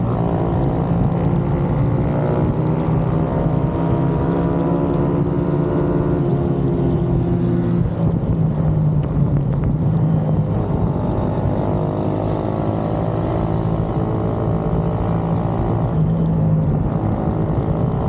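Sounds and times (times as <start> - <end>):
pit bike engines running: 0.0 - 3.7, 10.0 - 16.3.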